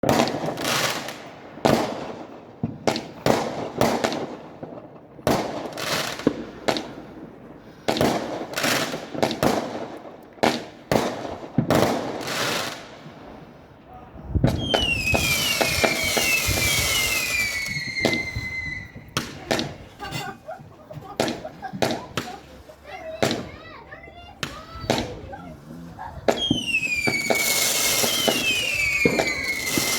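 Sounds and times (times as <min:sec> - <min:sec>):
fireworks banging and crackling: 0:00.0 - 0:29.9
falling firework whistles: 0:14.5 - 0:19.2, 0:26.3 - 0:29.9.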